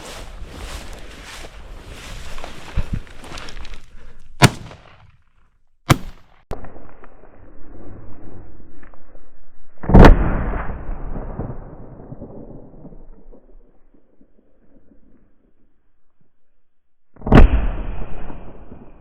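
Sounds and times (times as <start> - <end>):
gunshots: 4.4 - 5.0, 5.9 - 6.3.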